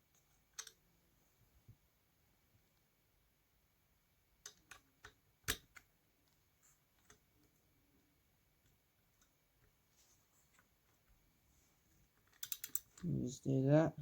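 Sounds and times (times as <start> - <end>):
metal tool clicks: 12.3 - 13.0.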